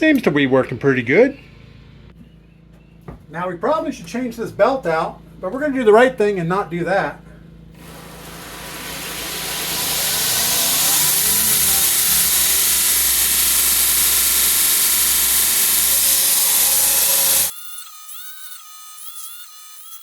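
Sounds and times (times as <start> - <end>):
belt grinder grinding steel: 7.8 - 20.0.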